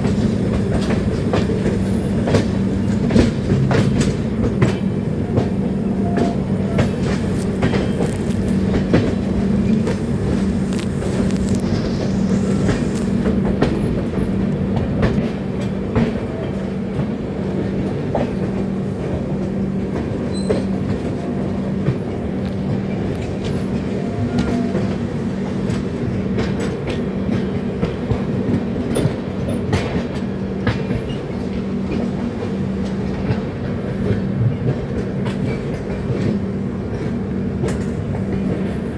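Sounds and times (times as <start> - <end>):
clickety-clack over rail joints: 0.0 - 10.4, 13.6 - 38.9
train wheels rumbling on rails: 0.0 - 38.9
low pulsing hum: 7.2 - 14.4.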